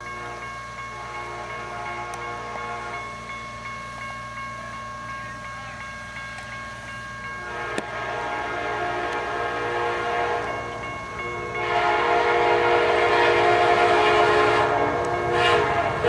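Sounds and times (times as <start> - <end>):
crossing warning bell ringing: 0.0 - 16.0
engines idling: 7.4 - 16.0.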